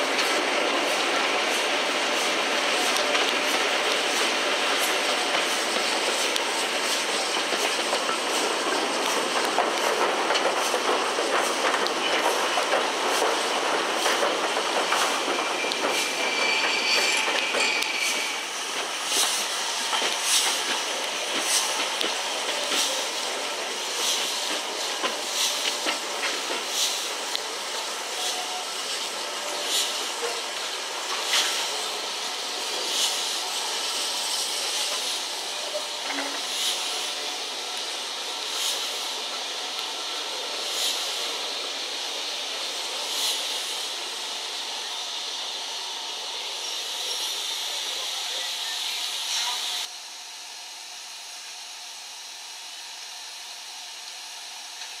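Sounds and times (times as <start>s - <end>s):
train rushing noise: 0.0s - 49.9s
high squeal: 15.0s - 18.6s.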